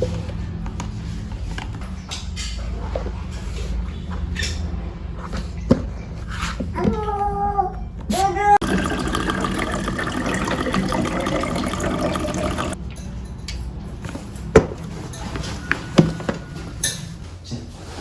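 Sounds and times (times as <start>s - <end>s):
liquid pouring into container: 8.6s - 12.8s.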